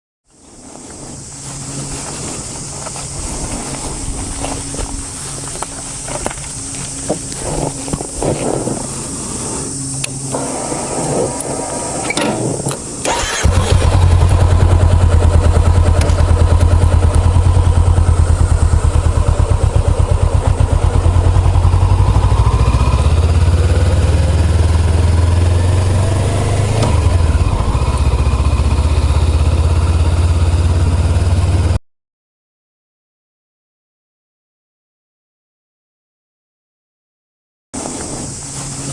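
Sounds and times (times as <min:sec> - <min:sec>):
motorcycle engine starting and idling: 0:00.8 - 0:31.8.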